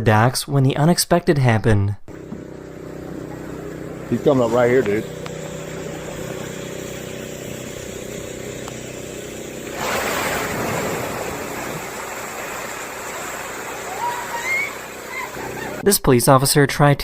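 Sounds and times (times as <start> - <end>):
engine hum: 2.1 - 15.8
water splashing: 9.6 - 15.8.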